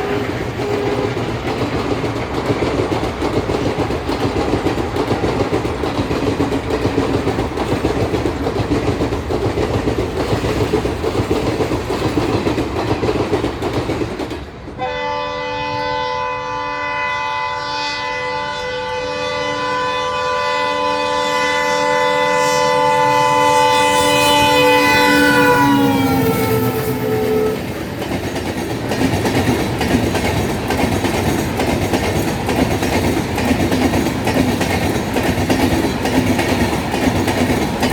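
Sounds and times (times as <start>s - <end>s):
locomotive horn blast: 0.0s - 1.2s, 14.8s - 27.8s
wheel-on-rail noise: 0.0s - 14.8s, 23.2s - 37.9s
diesel train passing: 0.0s - 37.9s.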